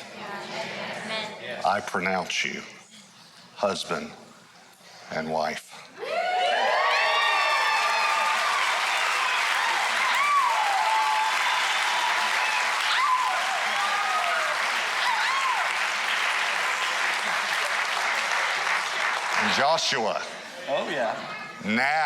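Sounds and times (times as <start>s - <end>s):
cheers and whoops: 6.0s - 15.9s
crowd applauding: 6.2s - 20.0s.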